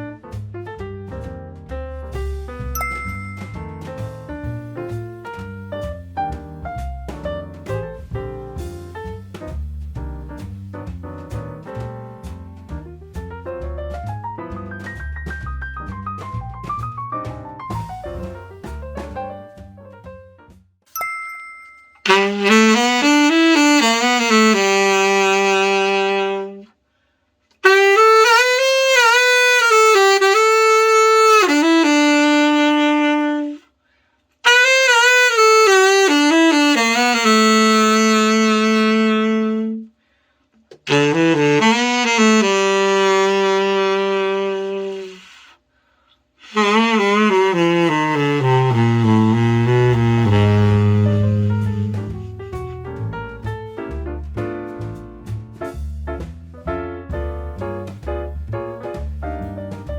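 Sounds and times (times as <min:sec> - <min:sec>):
tenor saxophone solo: 0:22.0 - 0:26.7, 0:27.6 - 0:33.7, 0:34.4 - 0:39.9, 0:40.7 - 0:45.6, 0:46.4 - 0:53.1.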